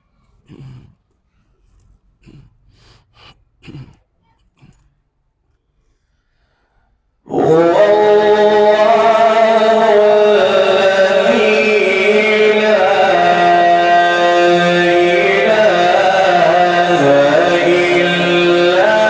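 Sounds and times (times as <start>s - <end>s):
man chanting melodic recitation: 7.3s - 19.0s.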